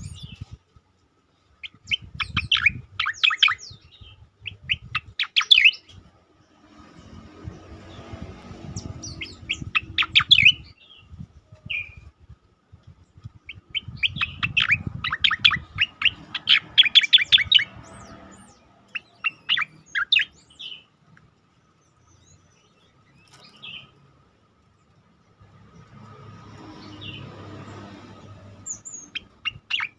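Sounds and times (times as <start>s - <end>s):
bird song downward sweeping bursts: 1.6s - 12.3s, 13.4s - 20.9s, 25.7s - 29.9s.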